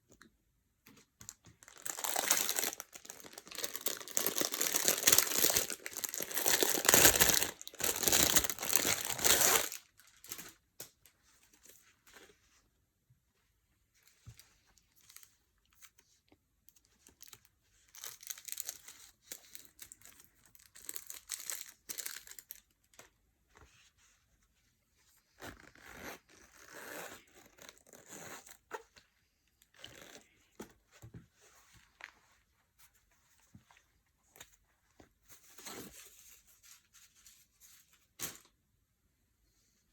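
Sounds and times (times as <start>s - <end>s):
packaging torn and crinkled: 1.6s - 10.5s.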